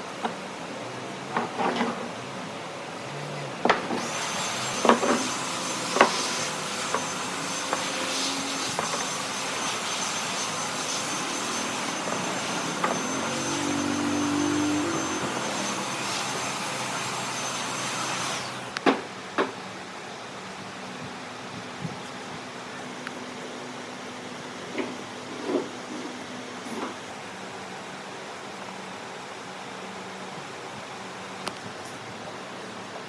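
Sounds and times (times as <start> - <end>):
electric power tool whining: 3.7 - 18.8.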